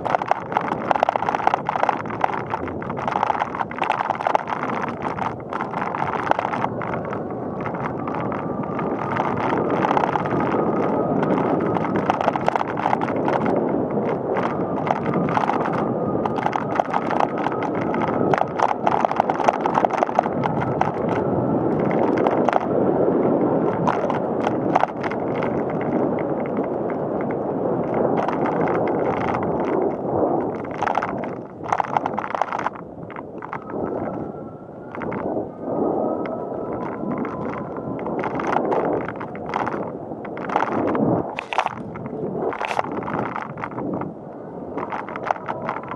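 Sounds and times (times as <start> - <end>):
bicycle rattles and clicks: 0.0 - 45.9
bicycle tyres rolling on pavement: 0.0 - 45.9.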